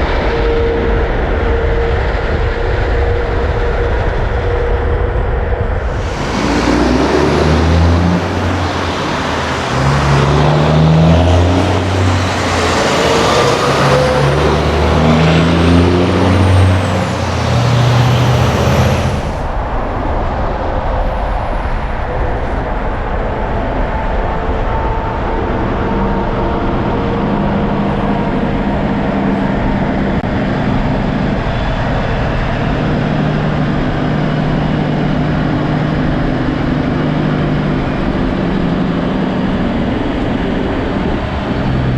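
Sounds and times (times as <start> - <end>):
truck diesel engine shifting gears: 5.8 - 19.5.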